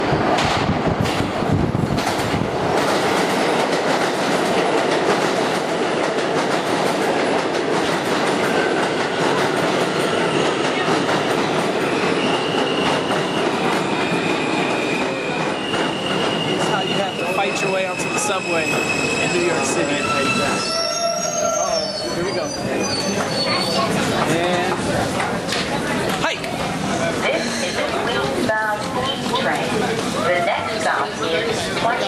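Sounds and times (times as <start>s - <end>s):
subway train rumbling on rails: 0.0s - 32.0s
high wheel squeals: 14.0s - 24.0s.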